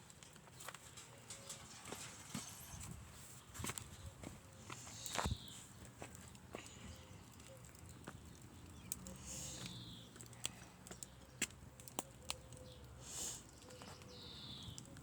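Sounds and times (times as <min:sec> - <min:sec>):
campfire crackling: 0:00.0 - 0:15.0
fire popping: 0:00.0 - 0:15.0
fire hissing: 0:04.6 - 0:05.8, 0:09.1 - 0:10.1, 0:13.0 - 0:13.6.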